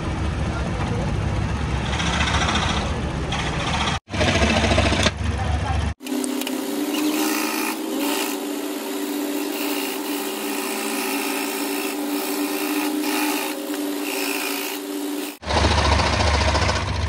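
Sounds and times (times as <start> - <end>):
power tool motor hum: 6.0 - 16.9.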